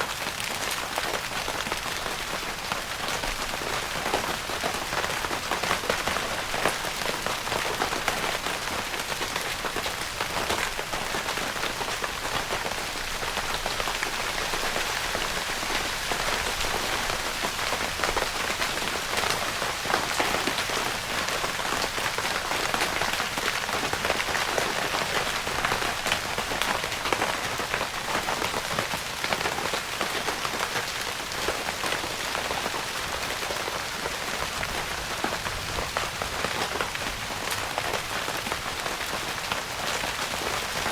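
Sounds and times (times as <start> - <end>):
rain pattering on tent fabric: 0.0 - 40.9.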